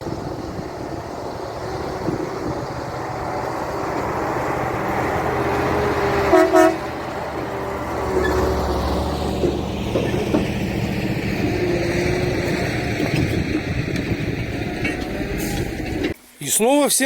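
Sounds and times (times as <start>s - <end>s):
engine and road noise: 0.0s - 16.2s
vehicle horn toots: 6.2s - 7.0s.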